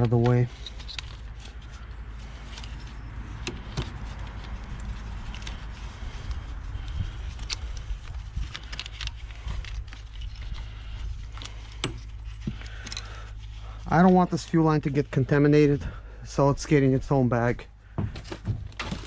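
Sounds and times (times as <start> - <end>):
steady low hum: 0.0 - 19.0
small clicks of hands working: 2.4 - 13.6.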